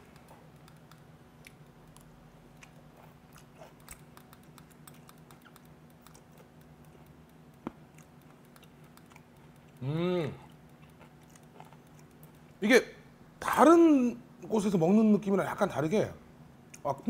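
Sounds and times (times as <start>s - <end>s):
wet chewing mouth clicks: 0.0s - 12.6s
faint room hum: 0.0s - 17.0s.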